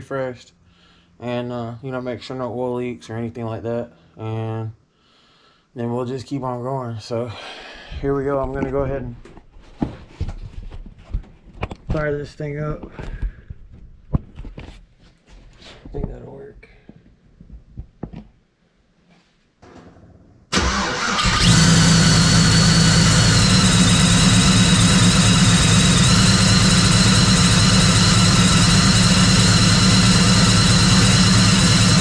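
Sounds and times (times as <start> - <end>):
engine cranking and idling: 20.5 - 32.0.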